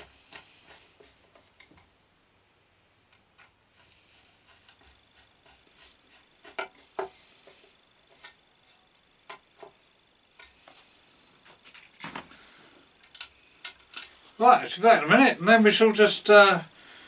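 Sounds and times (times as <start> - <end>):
high scraping or rubbing: 3.8 - 8.8.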